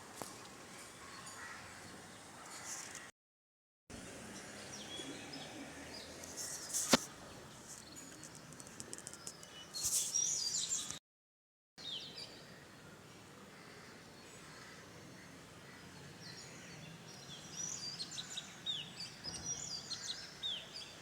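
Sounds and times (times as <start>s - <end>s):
small birds chirping: 4.3s - 11.0s.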